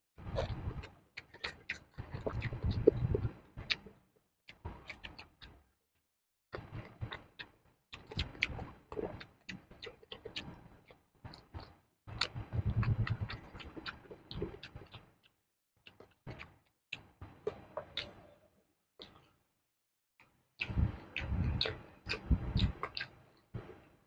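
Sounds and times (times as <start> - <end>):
chewing crisp vegetables: 0.2 - 5.6, 6.6 - 18.4, 20.2 - 23.9
wet mouth clicks: 4.5 - 5.6, 6.6 - 18.3, 19.0 - 19.3, 20.2 - 23.7.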